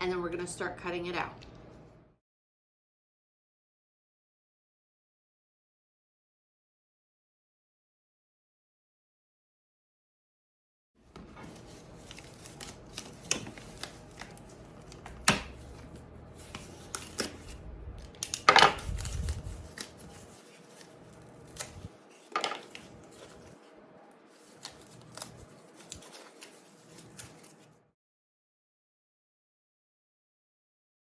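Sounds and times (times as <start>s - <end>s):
cardboard snapping: 12.1s - 15.8s, 21.5s - 23.4s.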